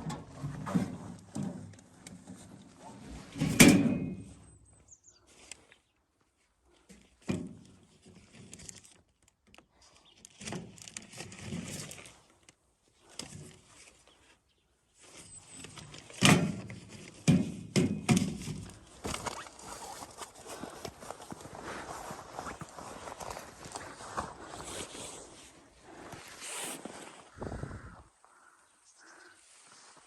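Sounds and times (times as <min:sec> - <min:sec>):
footsteps thumping and shuffling: 0:18.2 - 0:28.1.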